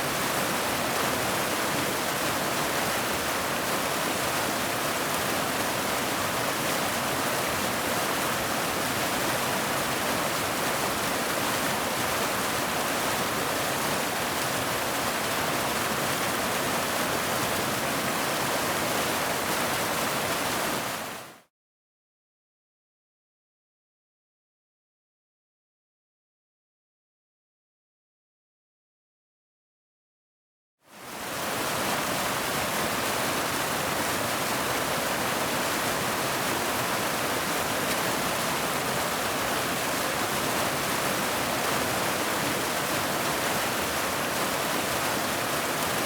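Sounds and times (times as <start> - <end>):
waterfall rushing: 31.1 - 46.0.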